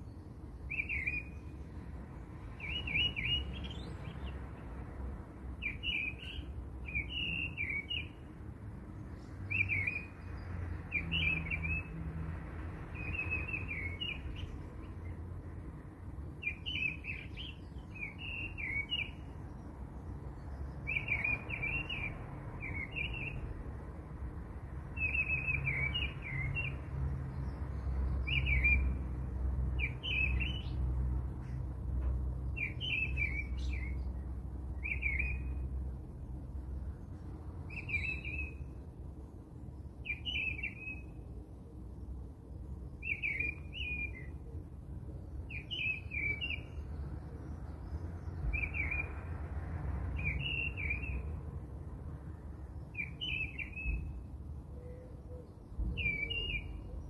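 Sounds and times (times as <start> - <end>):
small bird chirping: 0.0 - 1.6, 2.5 - 4.6, 54.8 - 57.0.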